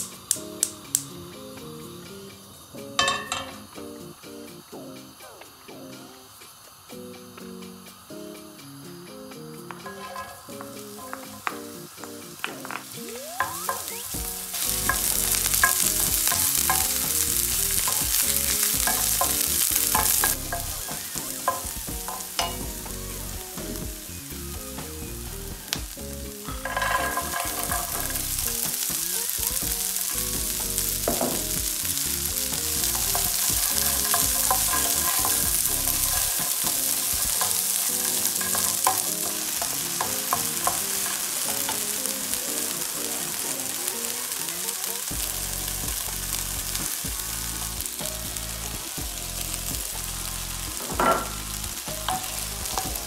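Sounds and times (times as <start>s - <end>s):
onion sizzling in oil: 0.0s - 53.0s
wooden spoon scraping a pan: 9.8s - 11.6s, 13.6s - 22.9s, 26.6s - 42.8s
beans tipped into pan: 26.6s - 28.9s, 32.6s - 41.9s.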